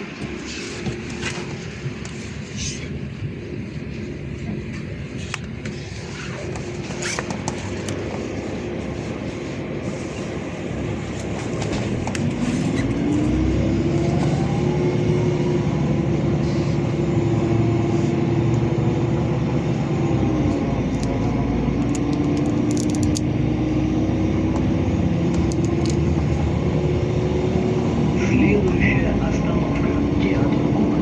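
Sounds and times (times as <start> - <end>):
bus engine rumble: 0.0 - 31.0
rising drivetrain whine: 10.4 - 31.0.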